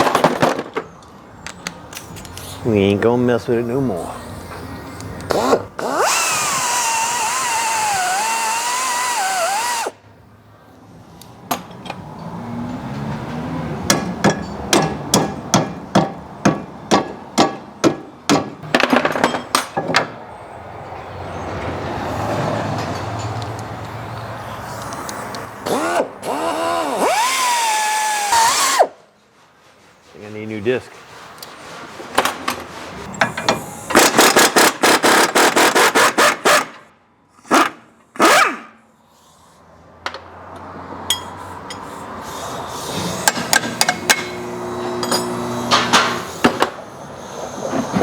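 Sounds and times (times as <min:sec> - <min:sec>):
cut-off tool whining on metal: 0:05.3 - 0:10.0, 0:25.6 - 0:28.9, 0:43.2 - 0:46.7.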